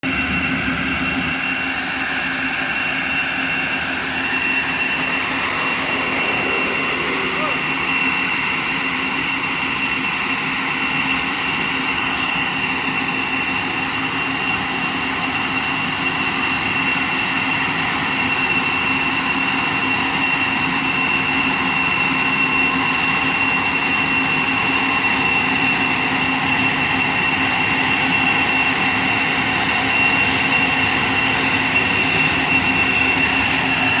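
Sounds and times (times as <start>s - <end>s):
motorised sprayer hissing and whining: 0.1s - 9.6s.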